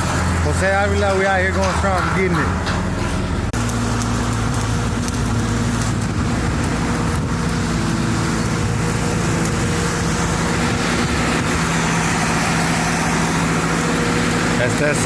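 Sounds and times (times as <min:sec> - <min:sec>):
welding machine engine humming: 0:00.0 - 0:15.0.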